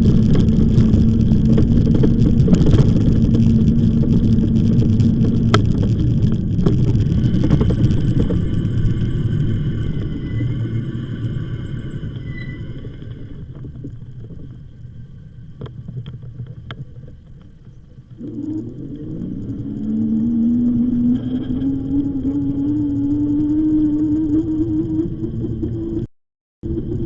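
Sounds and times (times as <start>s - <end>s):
wind and tyre rumble: 0.0s - 27.0s
electric motor hum rising: 18.2s - 26.1s.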